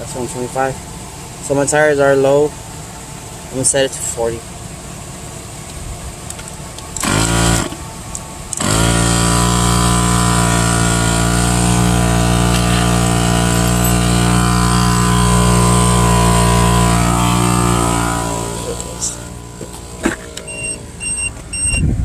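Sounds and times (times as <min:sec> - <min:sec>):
tire inflator compressor running: 0:06.8 - 0:21.6.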